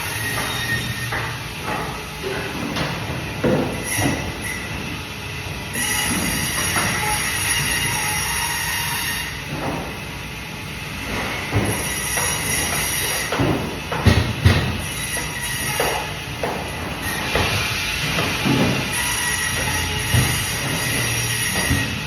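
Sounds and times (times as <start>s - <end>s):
band saw whine cutting fish: 0.0s - 13.8s, 14.4s - 22.0s
loud knocks: 13.3s - 14.8s, 17.3s - 22.0s.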